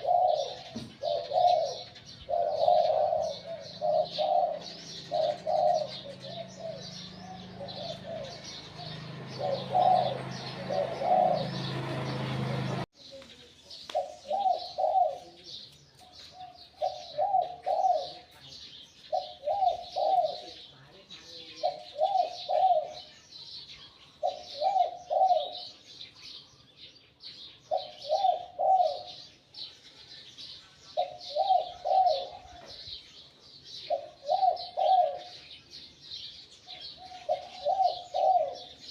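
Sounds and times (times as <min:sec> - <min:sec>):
dove cooing: 0:00.0 - 0:12.8, 0:13.9 - 0:15.6, 0:16.2 - 0:20.7, 0:21.4 - 0:23.2, 0:24.2 - 0:25.9, 0:27.6 - 0:29.4, 0:31.0 - 0:33.0, 0:33.7 - 0:35.6, 0:36.7 - 0:38.9
high bird chirping: 0:00.0 - 0:38.9.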